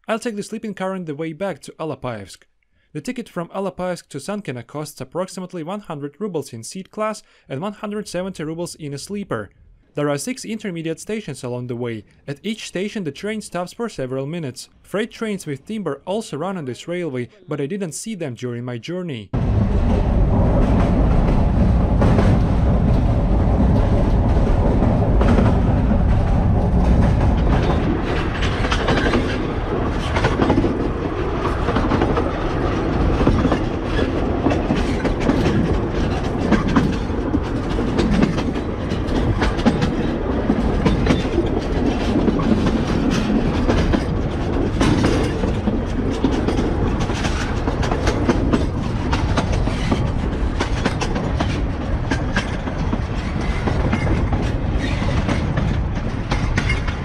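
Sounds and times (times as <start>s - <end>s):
train carriage rumble: 19.3s - 57.0s
wheels clattering over rail joints: 19.4s - 57.0s.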